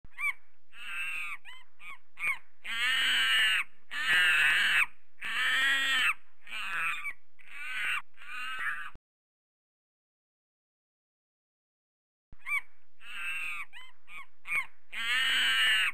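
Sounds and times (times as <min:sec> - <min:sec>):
bird giving harsh calls: 0:00.1 - 0:09.0, 0:12.4 - 0:15.9.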